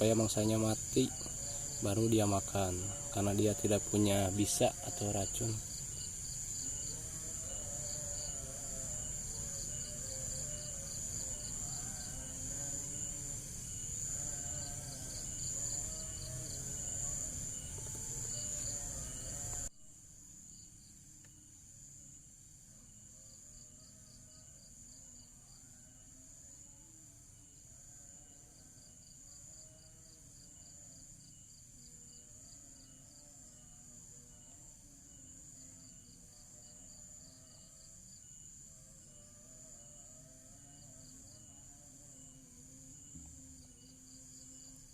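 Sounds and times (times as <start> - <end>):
insects chirping: 0.0 - 44.9.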